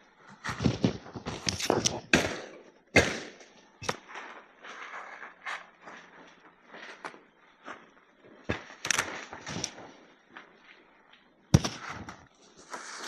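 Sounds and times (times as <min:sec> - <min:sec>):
sharp knocks and cracks: 0:00.4 - 0:04.4, 0:08.4 - 0:09.8, 0:11.5 - 0:12.4.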